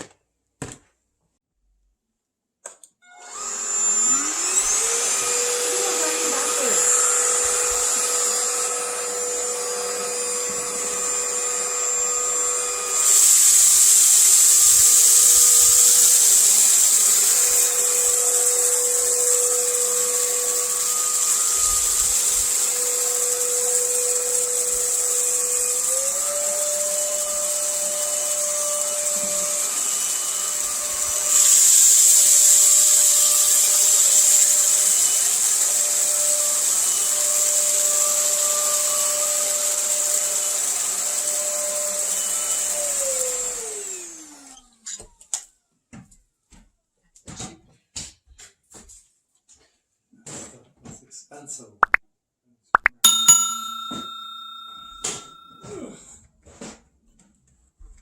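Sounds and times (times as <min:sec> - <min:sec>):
vacuum cleaner motor whine: 0:03.1 - 0:44.7.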